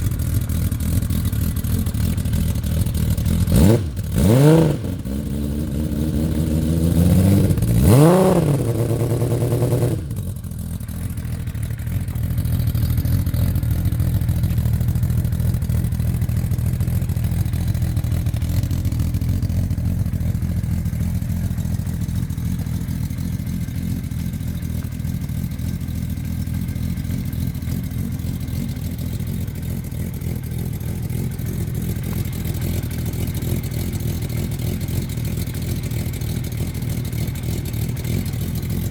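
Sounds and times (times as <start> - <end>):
motorcycle engine revving and idling: 0.0 - 38.9.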